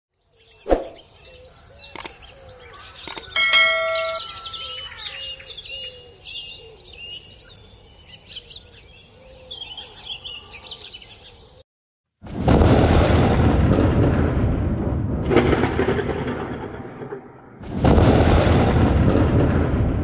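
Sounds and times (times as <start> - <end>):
small birds chirping: 0.2 - 11.6
bell-like ding: 3.1 - 5.4.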